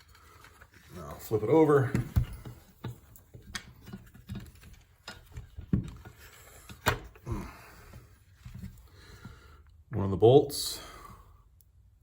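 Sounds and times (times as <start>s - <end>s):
clicks and knocks of parts: 1.8s - 7.2s.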